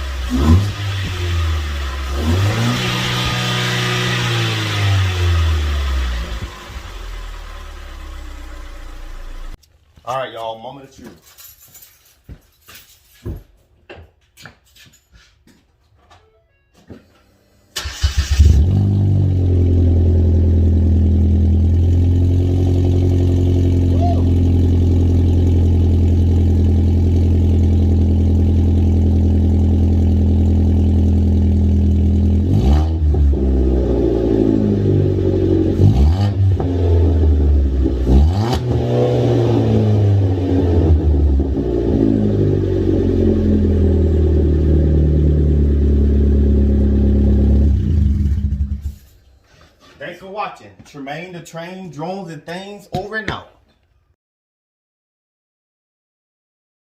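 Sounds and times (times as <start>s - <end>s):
car engine idling and revving: 0.0s - 9.6s, 17.8s - 49.1s.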